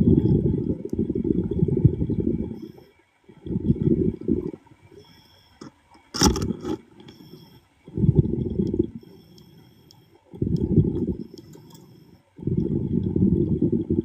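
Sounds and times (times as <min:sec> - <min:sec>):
underwater bubbles rumbling: 0:00.0 - 0:02.7, 0:03.3 - 0:04.9, 0:07.8 - 0:09.1, 0:10.3 - 0:11.4, 0:12.4 - 0:14.0.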